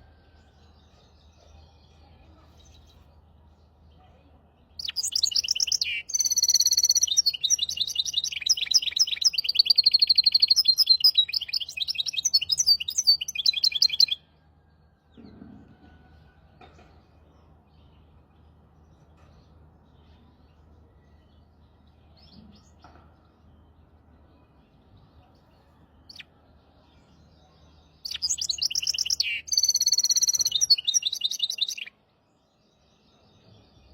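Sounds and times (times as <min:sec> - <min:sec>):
finch singing trills: 0:04.8 - 0:14.2, 0:28.0 - 0:31.9.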